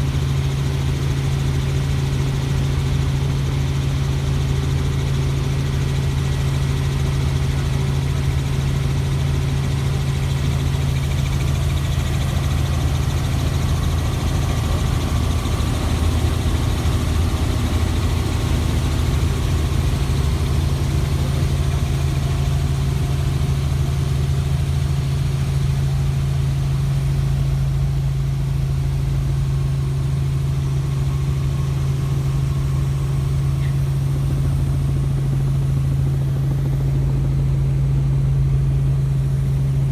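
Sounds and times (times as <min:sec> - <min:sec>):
helicopter drone: 0:00.0 - 0:39.9.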